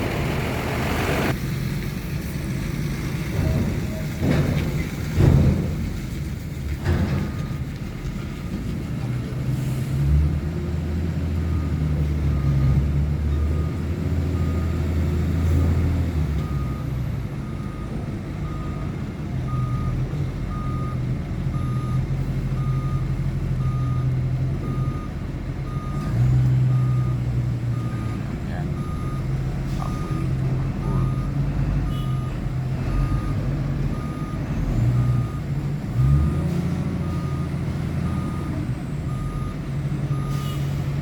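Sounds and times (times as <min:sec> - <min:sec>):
heavy vehicle engine drone: 0:00.0 - 0:41.0
reversing alarm beeping: 0:19.5 - 0:26.1, 0:26.7 - 0:32.3, 0:32.9 - 0:40.8.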